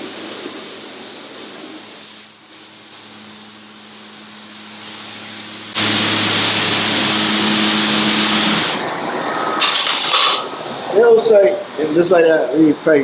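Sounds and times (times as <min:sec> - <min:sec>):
loud rushing machine noise: 0:02.6 - 0:10.9.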